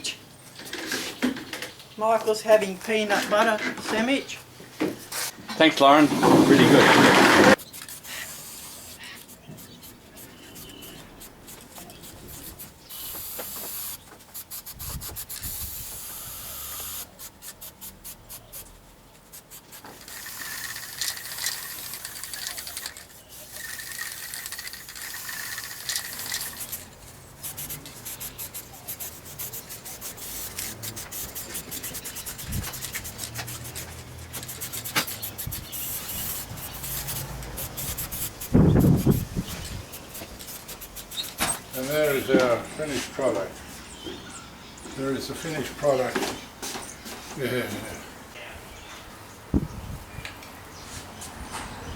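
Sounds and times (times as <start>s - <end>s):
hand sanding wood: 5.9s - 16.5s, 25.4s - 43.1s.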